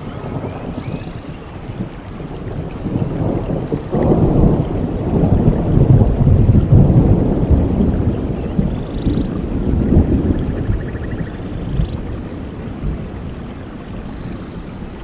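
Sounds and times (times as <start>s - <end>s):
rolling thunder: 0.0s - 15.0s
steady rain: 0.0s - 15.0s.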